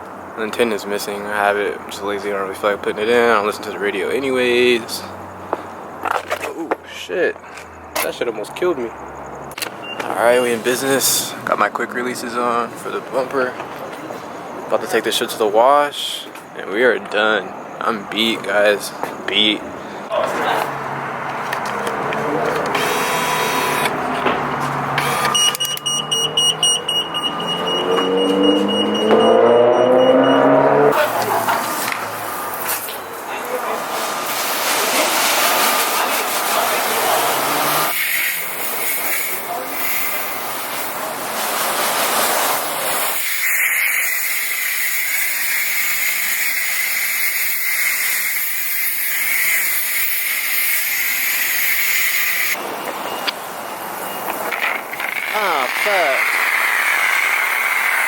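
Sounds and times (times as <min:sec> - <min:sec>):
car engine revving: 0:20.7 - 0:32.6, 0:34.9 - 0:38.0
warning buzzer beeping rapidly: 0:22.8 - 0:23.9, 0:25.0 - 0:30.9
pressure washer spraying water: 0:33.8 - 0:52.6, 0:55.0 - 0:58.0.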